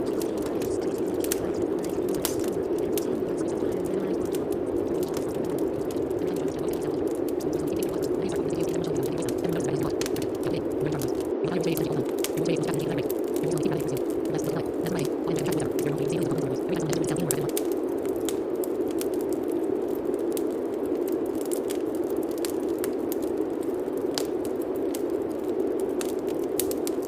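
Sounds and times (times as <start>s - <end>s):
faint low voice murmuring: 0.0s - 17.6s
steady rain pattering: 0.0s - 27.0s.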